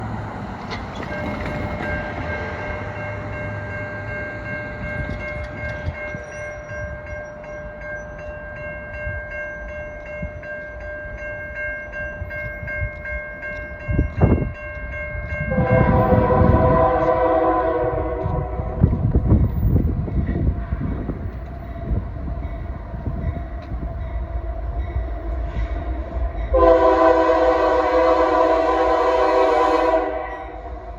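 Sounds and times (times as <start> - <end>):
train rumbling: 0.0 - 30.9
crossing bell ringing: 1.0 - 30.9
locomotive horn: 15.5 - 19.0, 26.5 - 30.9.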